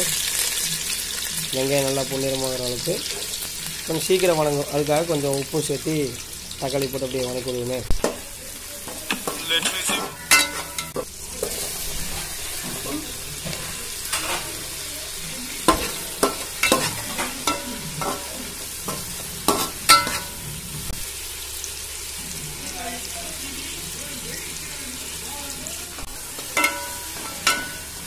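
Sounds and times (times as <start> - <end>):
vegetables sizzling in oil: 0.0 - 28.0
metal spatula scraping pan: 8.9 - 14.8, 15.6 - 20.5.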